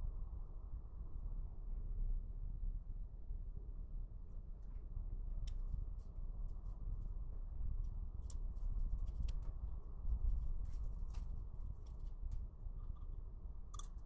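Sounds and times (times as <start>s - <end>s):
low steady rumble: 0.0s - 14.0s
light clicks and scrapes: 7.8s - 14.0s.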